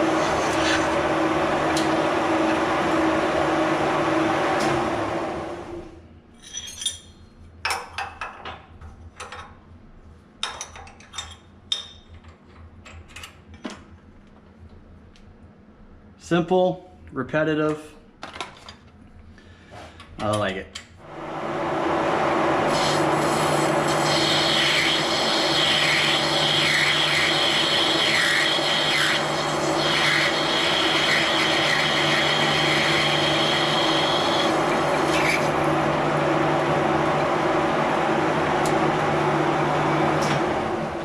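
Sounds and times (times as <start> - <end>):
metal lathe humming: 0.0 - 5.8, 21.1 - 41.0
cutting tool scraping metal: 0.2 - 1.0.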